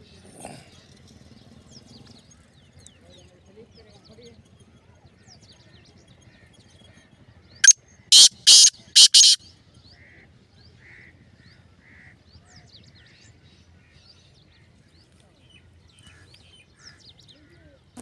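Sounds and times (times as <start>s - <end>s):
bird calling harsh notes: 7.6s - 9.4s
faint short chirps: 7.6s - 9.4s.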